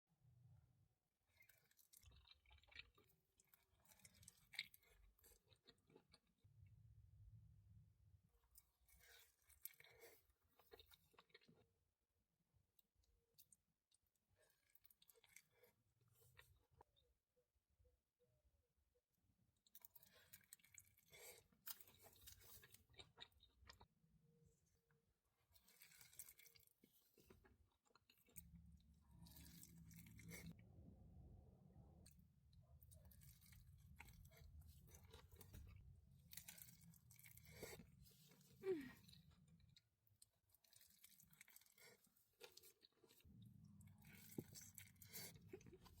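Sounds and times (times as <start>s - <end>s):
person chewing crunchy food: 1.4s - 6.4s, 8.6s - 11.8s, 19.6s - 23.9s, 25.4s - 30.6s, 32.8s - 46.0s
low rumble: 28.6s - 34.7s.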